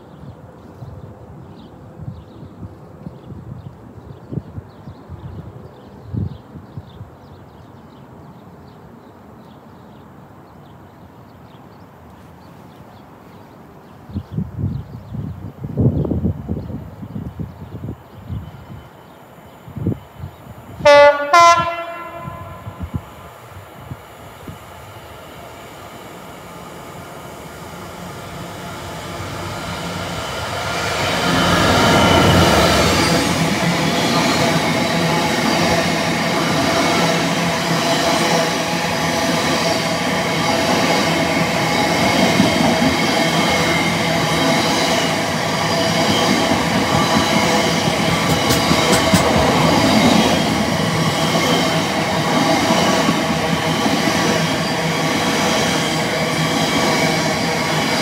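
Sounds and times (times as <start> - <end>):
freight train passing at speed: 0.0 - 58.0
two-tone train horn blasts: 20.8 - 23.0.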